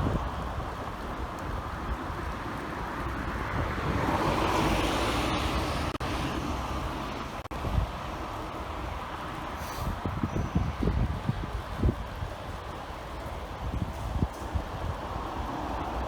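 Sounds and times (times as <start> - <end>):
city street traffic: 0.0 - 16.0
wind rumbling on microphone: 0.0 - 16.0.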